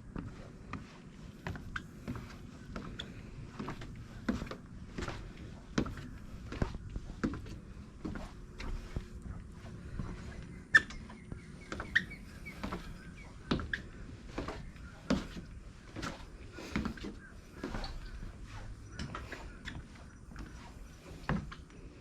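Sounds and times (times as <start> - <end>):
footsteps walking: 0.0 - 22.0
bird chirps: 10.0 - 21.3.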